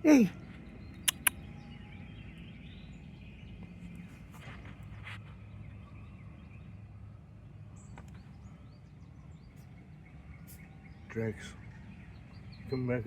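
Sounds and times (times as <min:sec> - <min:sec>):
faint bird chirps: 0:00.0 - 0:13.0
soft clicks: 0:01.0 - 0:01.4.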